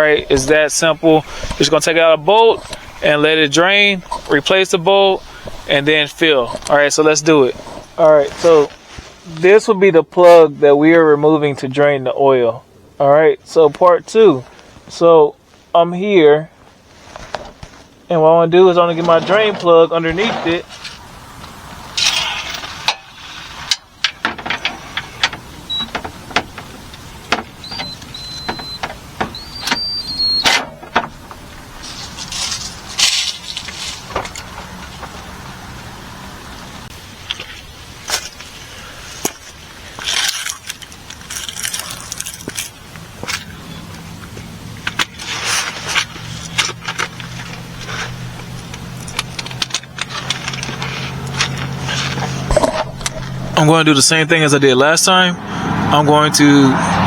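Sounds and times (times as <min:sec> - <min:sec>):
steady low hum: 0:00.0 - 0:08.7
thin high squeaks: 0:00.0 - 0:08.7, 0:22.0 - 0:35.0
short scraping rustles: 0:00.0 - 0:09.4, 0:18.9 - 0:35.3, 0:37.2 - 0:53.6.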